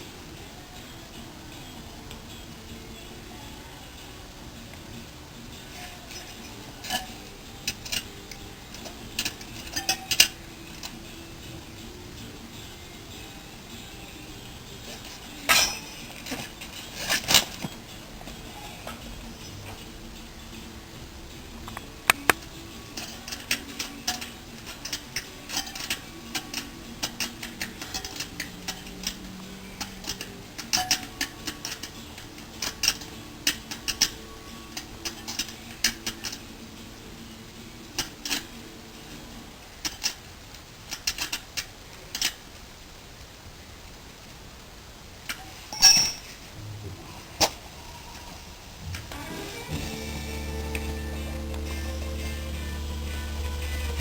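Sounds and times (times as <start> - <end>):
metal tools clinking: 5.6 - 11.1, 14.0 - 20.0, 21.6 - 36.6, 45.3 - 46.6.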